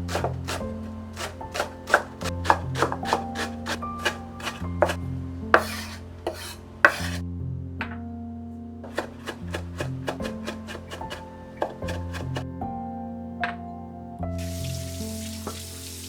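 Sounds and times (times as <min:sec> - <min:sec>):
knife chopping on cutting board: 0:00.0 - 0:05.0, 0:05.6 - 0:07.2, 0:08.9 - 0:12.4
knife scraping cutting board: 0:00.0 - 0:05.0, 0:05.6 - 0:07.2, 0:08.8 - 0:12.4
soft background music: 0:00.0 - 0:16.0.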